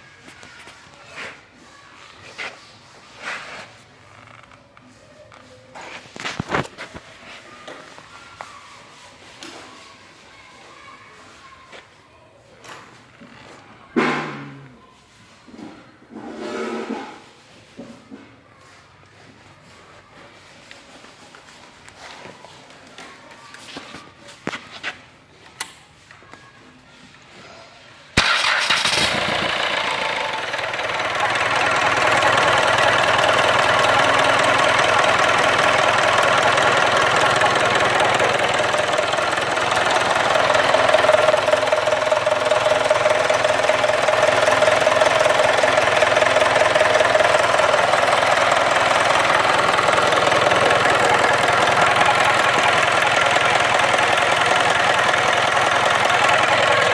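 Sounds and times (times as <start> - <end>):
diesel engine starting and running: 28.2 - 56.9.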